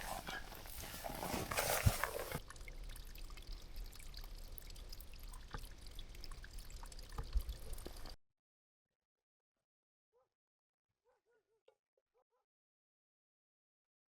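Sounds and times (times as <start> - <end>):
water trickling: 0.0 - 8.2.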